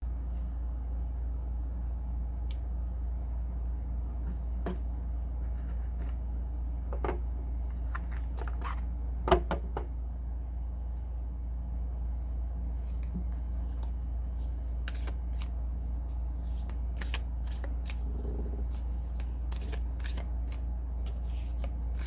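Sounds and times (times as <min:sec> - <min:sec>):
steady low hum: 0:00.0 - 0:22.0
cards being shuffled: 0:07.7 - 0:08.9, 0:12.8 - 0:22.0.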